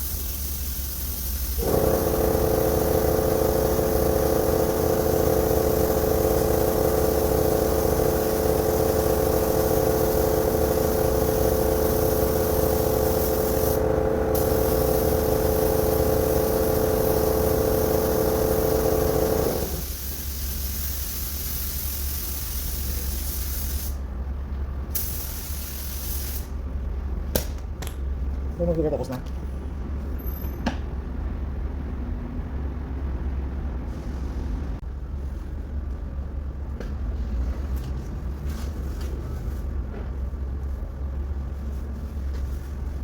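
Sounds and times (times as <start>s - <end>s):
spray gun hissing: 0.0s - 24.0s, 25.0s - 26.5s.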